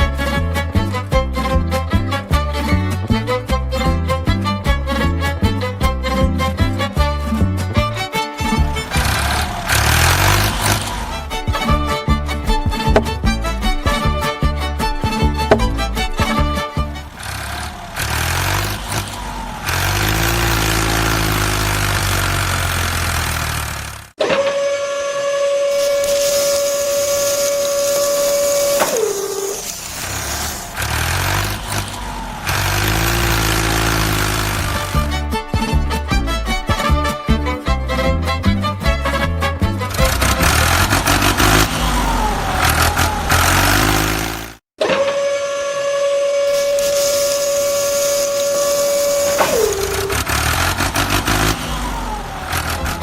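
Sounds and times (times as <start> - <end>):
small electric motor whining: 8.4 - 11.7, 17.0 - 35.1, 39.9 - 53.0
long horn-like tone: 24.2 - 29.8, 40.5 - 52.6
hissing noise: 25.7 - 34.9, 46.5 - 53.0.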